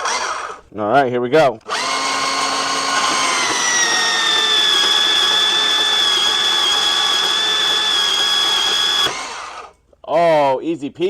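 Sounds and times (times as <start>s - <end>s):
power tool motor whining: 0.0s - 0.7s, 1.6s - 9.8s.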